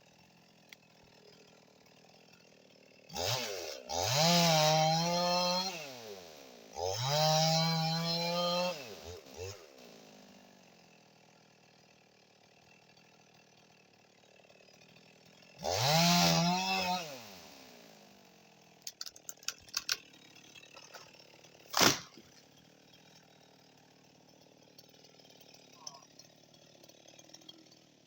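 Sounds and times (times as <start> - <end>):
chainsaw revving: 0.1 - 28.0
quick clicks: 18.8 - 20.0.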